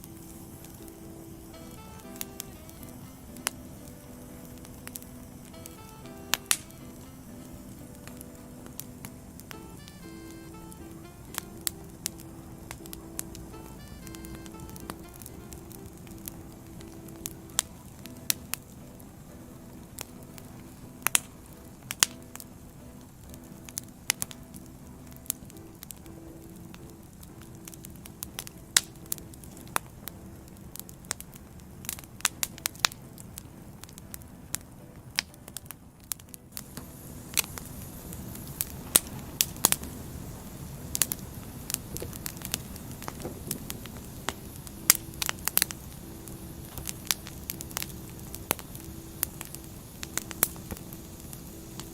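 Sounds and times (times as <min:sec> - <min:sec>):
faint low hum: 0:00.0 - 0:51.9
logs crackling and popping: 0:00.0 - 0:51.9
rush of flames: 0:36.1 - 0:51.9.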